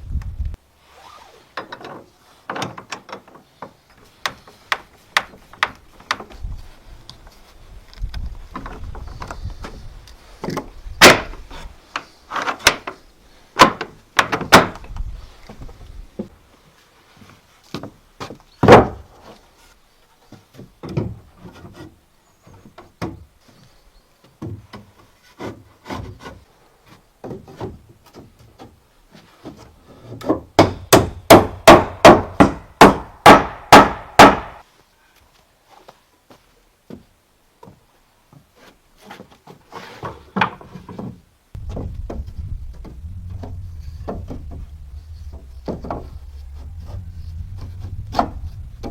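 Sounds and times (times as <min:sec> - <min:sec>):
rubbing scrape: 0:41.6 - 0:48.9.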